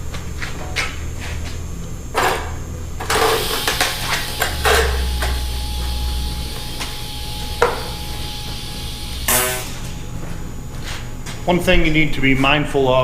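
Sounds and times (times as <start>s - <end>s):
electrical hum with hiss: 0.0s - 13.0s.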